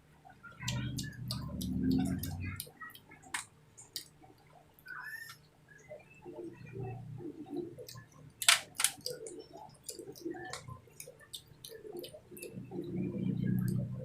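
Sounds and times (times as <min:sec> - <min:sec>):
chewing with sharp clicks: 0:00.5 - 0:05.4, 0:07.8 - 0:13.8.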